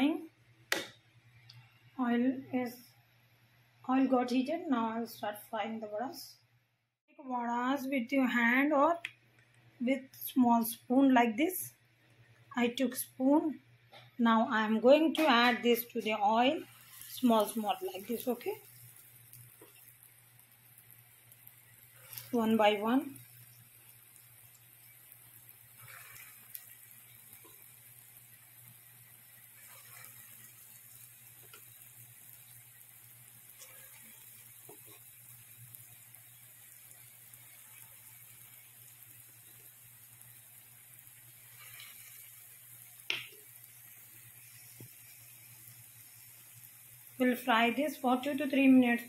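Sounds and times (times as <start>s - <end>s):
food frying in oil: 14.5s - 49.0s.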